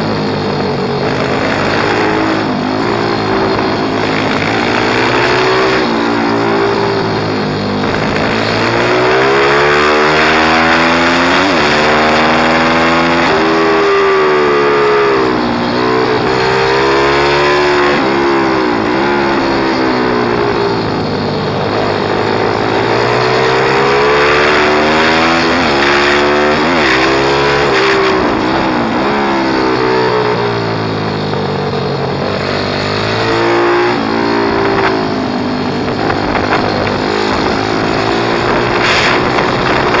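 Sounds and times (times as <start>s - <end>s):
pit bike engine revving: 0.0s - 40.0s.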